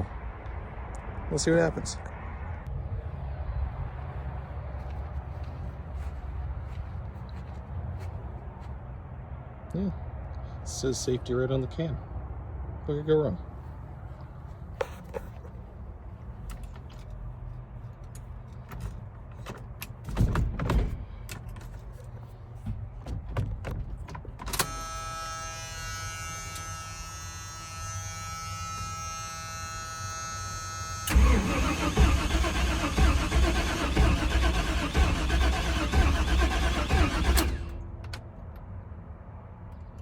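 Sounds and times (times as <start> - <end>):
truck engine cranking: 31.0 - 38.2.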